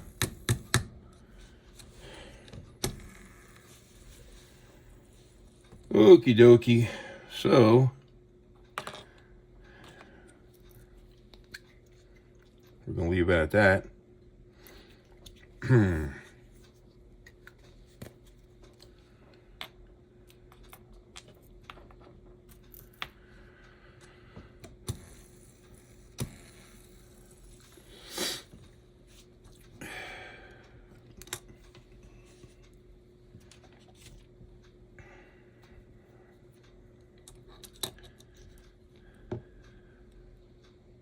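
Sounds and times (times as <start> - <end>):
faint steady hum: 0.0 - 41.0
low voice: 15.6 - 16.3
small parts clicking and tapping: 19.6 - 23.2, 37.1 - 39.5.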